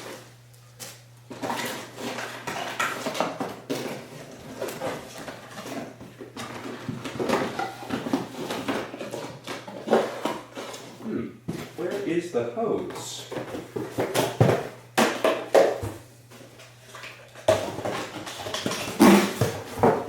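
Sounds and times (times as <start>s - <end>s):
parts scraping and clattering: 0.0s - 12.2s.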